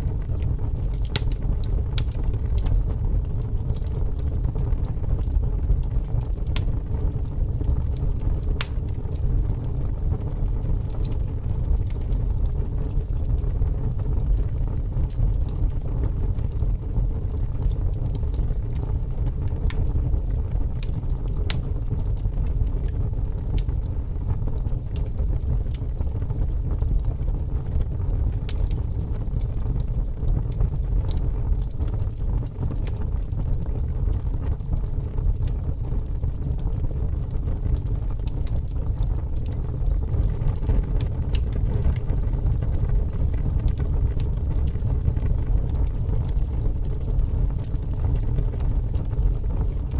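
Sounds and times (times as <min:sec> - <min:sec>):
fire crackling and popping: 0:00.0 - 0:49.9
wood fire rumbling: 0:00.0 - 0:49.9.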